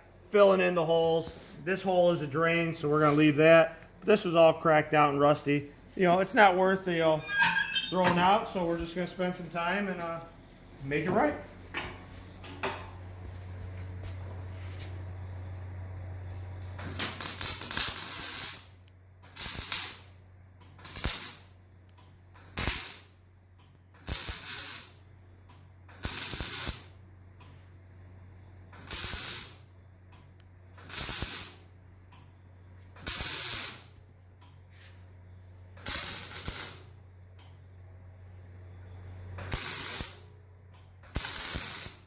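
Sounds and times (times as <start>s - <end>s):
steady low hum: 0.0s - 41.2s
arc welder crackling and hissing: 0.2s - 7.2s, 16.2s - 27.8s, 28.6s - 37.6s, 39.1s - 42.0s.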